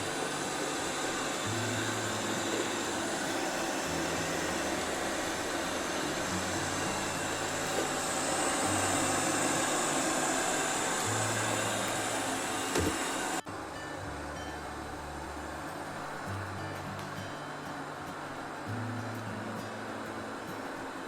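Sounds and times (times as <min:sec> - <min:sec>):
robot vacuum whirring: 0:00.0 - 0:13.4.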